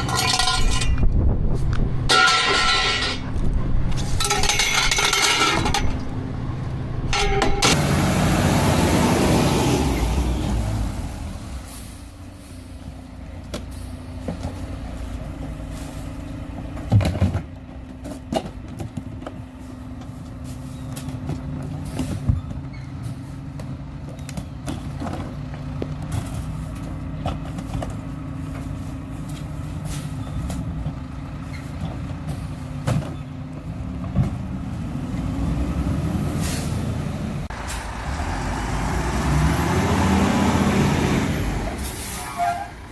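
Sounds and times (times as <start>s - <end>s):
knocks and clanks: 0.0s - 6.2s, 7.0s - 7.9s
garbage truck diesel engine: 0.0s - 42.9s.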